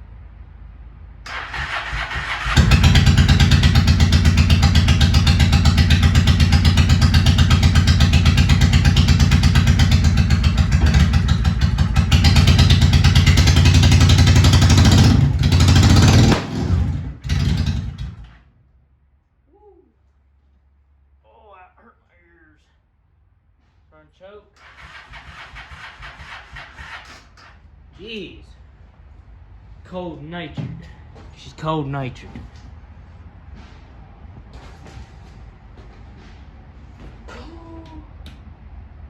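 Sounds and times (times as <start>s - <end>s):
motorcycle engine starting and stalling: 1.3s - 18.5s, 24.6s - 27.6s.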